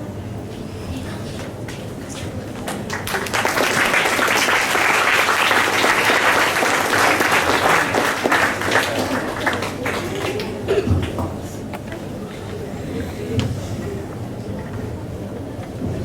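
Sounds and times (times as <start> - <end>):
audience applauding: 2.6 - 11.2.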